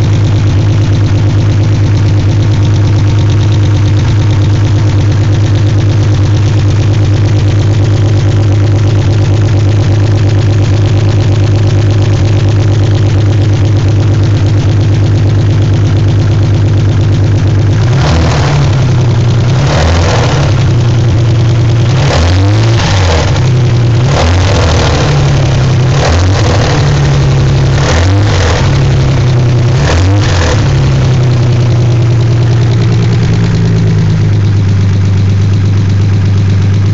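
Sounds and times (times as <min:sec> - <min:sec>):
car engine idling and revving: 0:00.0 - 0:36.9.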